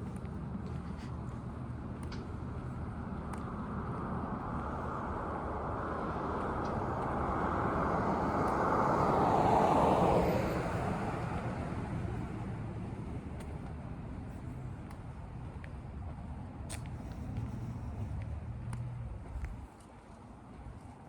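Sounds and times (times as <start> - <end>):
car passing by: 3.8 - 13.2.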